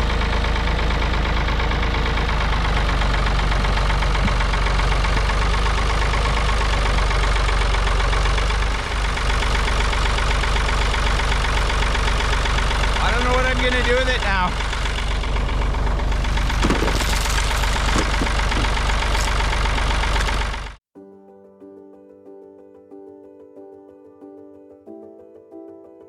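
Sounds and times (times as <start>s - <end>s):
tractor engine running: 0.0s - 20.8s.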